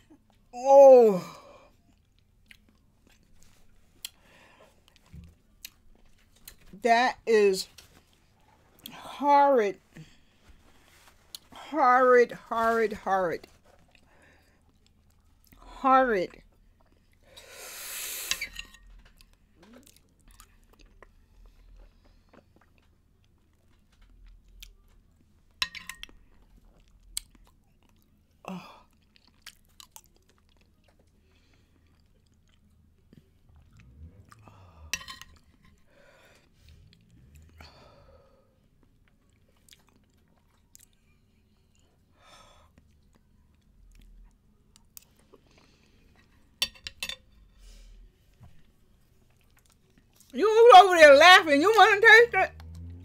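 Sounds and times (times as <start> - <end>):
person chewing wetly: 1.8 - 6.6, 19.2 - 34.5, 38.6 - 42.1, 49.1 - 50.3
strong breath out: 34.4 - 35.0.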